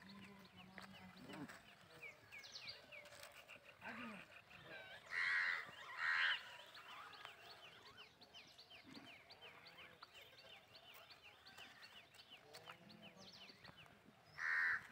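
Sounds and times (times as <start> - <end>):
small birds chirping: 0.0 - 14.9.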